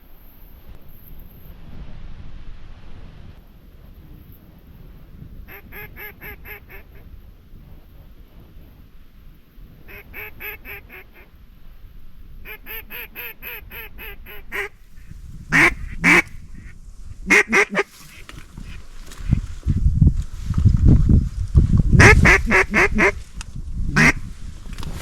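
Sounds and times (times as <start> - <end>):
low wind rumble: 0.0 - 25.0
duck call quacks: 5.5 - 7.0, 9.9 - 11.3, 12.4 - 14.7, 15.5 - 16.3, 17.3 - 18.8, 22.0 - 23.2, 23.9 - 24.2.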